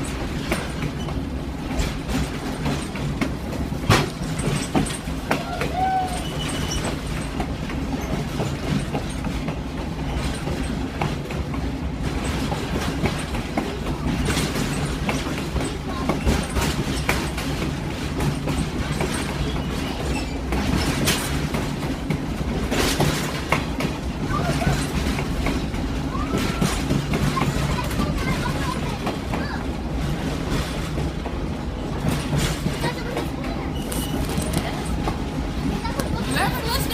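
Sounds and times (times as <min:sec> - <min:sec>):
train rumbling: 0:00.0 - 0:36.9
wheels clacking over track: 0:00.0 - 0:36.9.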